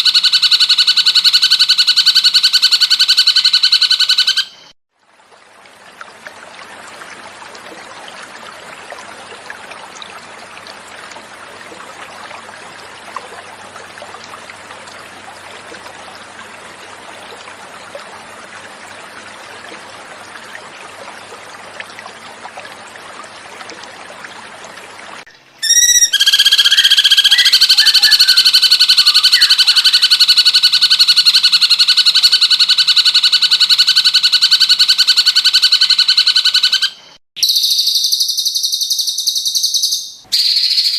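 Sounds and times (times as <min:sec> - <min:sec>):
bird song pulsing trill: 0:00.0 - 0:04.7, 0:25.6 - 0:40.9
flowing water: 0:00.0 - 0:37.2.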